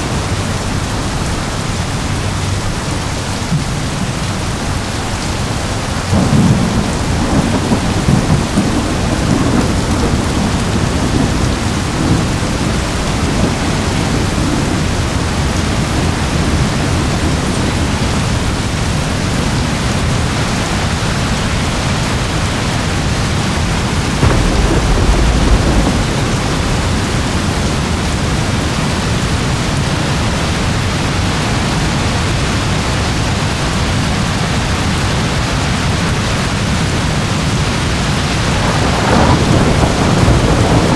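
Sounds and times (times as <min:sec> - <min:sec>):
steady rain: 0:00.0 - 0:40.9
low rolling thunder: 0:06.0 - 0:19.4, 0:23.0 - 0:32.6, 0:37.3 - 0:40.9.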